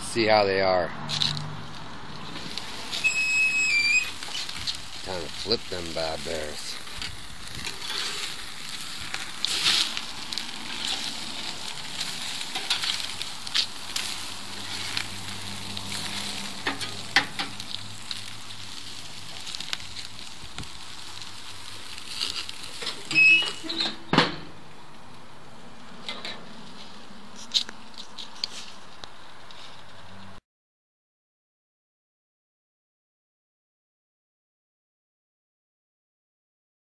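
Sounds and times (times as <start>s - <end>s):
steaks sizzling on a grill: 1.1s - 23.8s.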